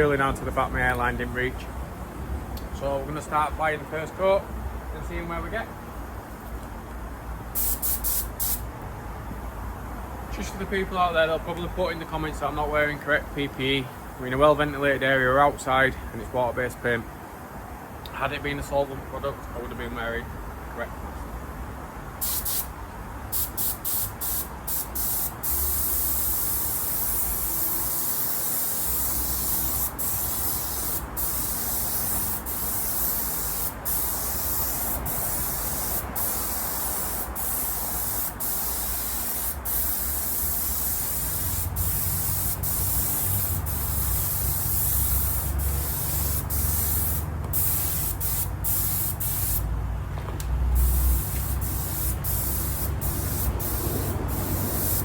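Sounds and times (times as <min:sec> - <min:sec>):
spray gun hissing: 0:07.6 - 0:08.7, 0:22.2 - 0:49.7, 0:50.8 - 0:55.0.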